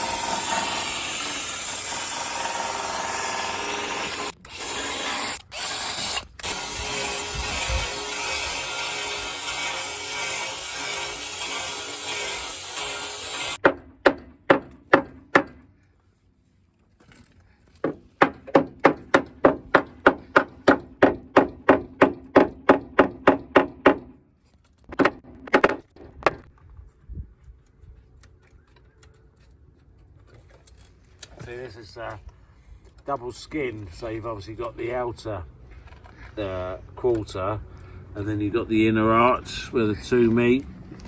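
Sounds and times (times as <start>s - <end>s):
angle grinder grinding metal: 0.0s - 13.6s
sharp evenly spaced knocks: 13.6s - 15.6s, 17.8s - 24.1s.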